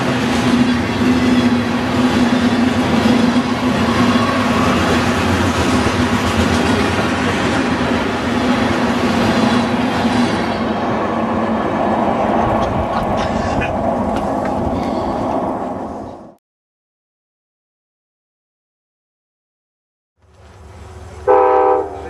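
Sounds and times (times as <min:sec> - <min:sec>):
train wheels rumbling on rail: 0:00.0 - 0:16.4.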